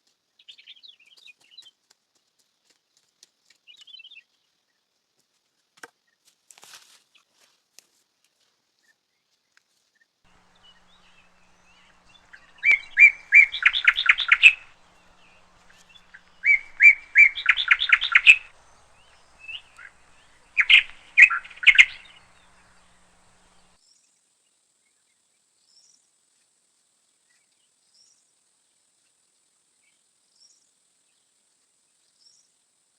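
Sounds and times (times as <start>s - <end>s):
songbird trilling song: 10.3s - 23.8s.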